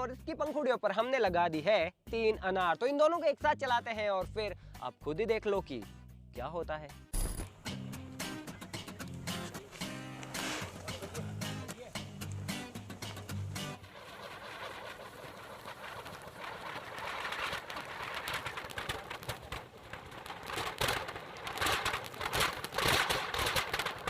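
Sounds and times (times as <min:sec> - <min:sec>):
firework fountains spraying sparks: 0:08.9 - 0:24.0.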